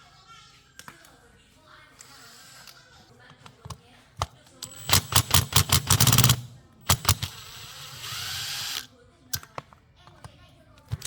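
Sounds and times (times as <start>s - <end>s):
tool clicks into rattle: 3.4s - 9.7s.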